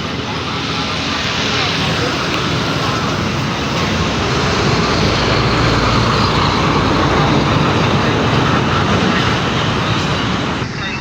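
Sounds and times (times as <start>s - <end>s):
heavy truck traffic noise: 0.0s - 10.8s.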